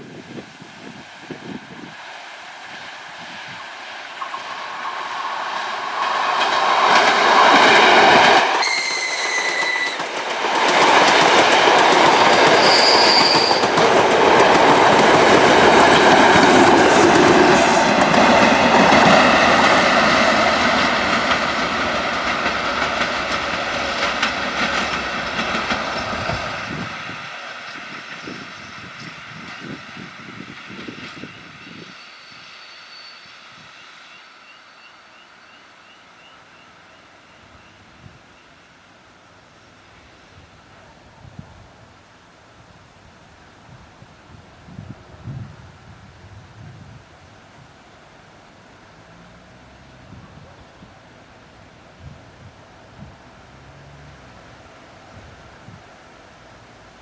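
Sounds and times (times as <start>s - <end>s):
train wheels clattering over rail joints: 4.2s - 27.0s
high-pitched train horn blast: 8.5s - 10.0s.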